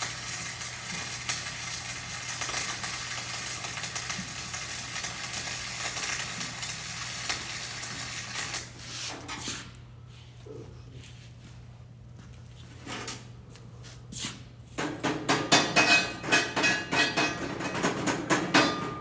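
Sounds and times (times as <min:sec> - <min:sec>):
arc welding crackle: 0:00.0 - 0:09.3.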